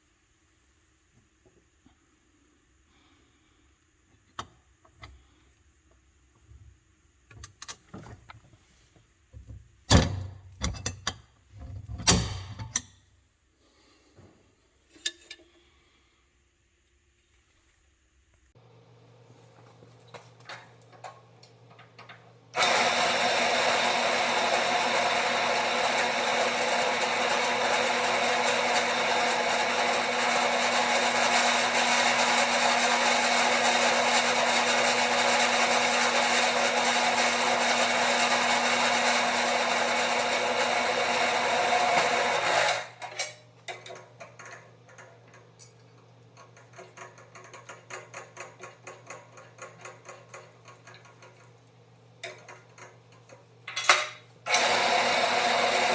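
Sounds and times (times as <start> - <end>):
electric drill running under load: 22.6 - 43.0, 54.5 - 55.9.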